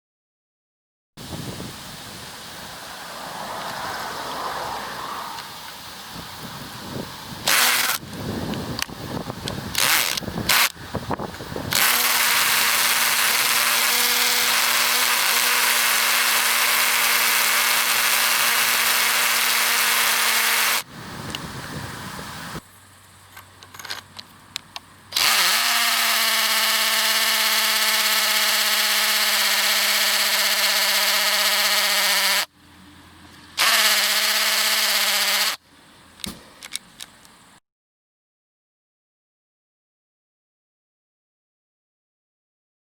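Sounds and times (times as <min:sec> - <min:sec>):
cordless drill motor spinning: 0:07.4 - 0:20.9, 0:25.1 - 0:32.5, 0:33.6 - 0:35.6.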